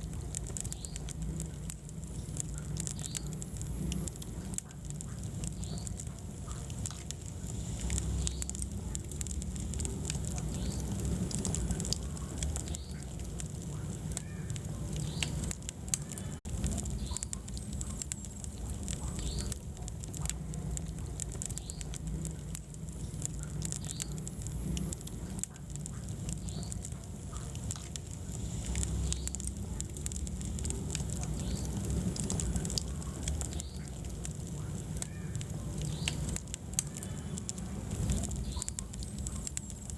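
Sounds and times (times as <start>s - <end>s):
fire rumbling: 0.0s - 39.9s
logs crackling and popping: 0.0s - 39.9s.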